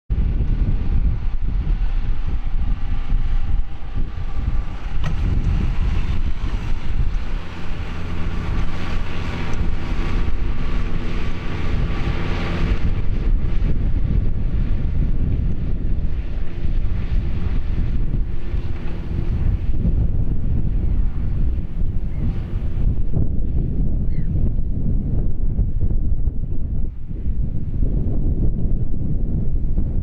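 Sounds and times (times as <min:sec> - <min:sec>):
wind buffeting microphone: 0:00.1 - 0:30.0
tractor diesel engine under load: 0:00.4 - 0:23.6.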